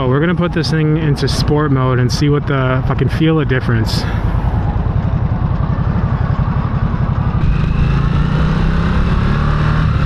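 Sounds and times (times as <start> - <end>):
motorcycle engine revving: 5.0 - 10.0.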